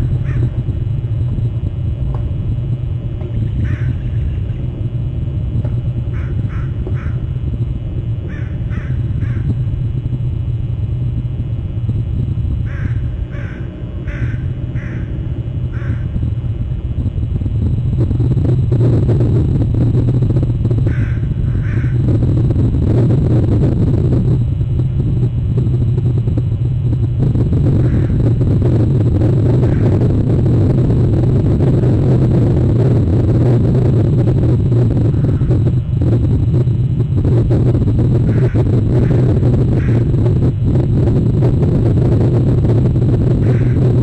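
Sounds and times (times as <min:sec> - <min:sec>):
steady low rumble: 0:00.0 - 0:44.0
crow cawing: 0:00.2 - 0:00.6, 0:03.6 - 0:04.2, 0:06.1 - 0:07.2, 0:08.3 - 0:09.5, 0:12.7 - 0:16.2, 0:20.9 - 0:22.0, 0:27.8 - 0:28.2, 0:38.3 - 0:40.1, 0:43.4 - 0:43.8.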